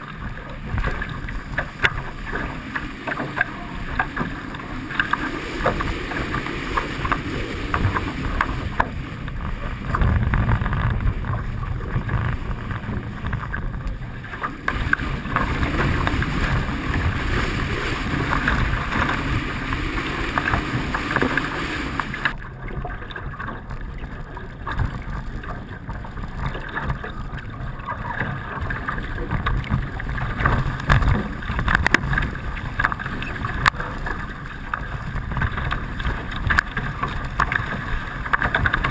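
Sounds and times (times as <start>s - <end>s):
water rushing past hulls: 0.0s - 38.9s
wind buffeting microphone: 0.0s - 38.9s
water slaps: 12.0s - 22.4s.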